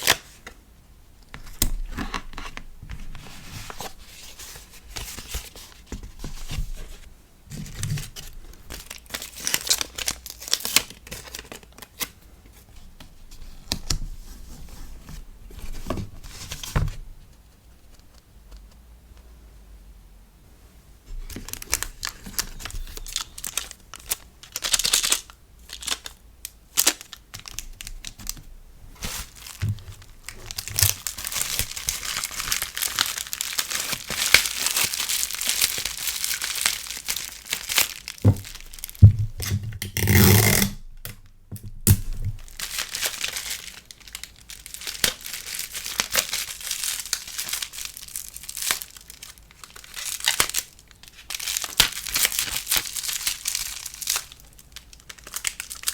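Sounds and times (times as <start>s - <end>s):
packaging crinkling and rustling: 1.3s - 17.1s, 21.1s - 41.3s, 42.0s - 55.9s
packaging tearing: 8.0s - 12.1s, 21.4s - 26.1s, 29.1s - 40.8s, 41.9s - 55.9s.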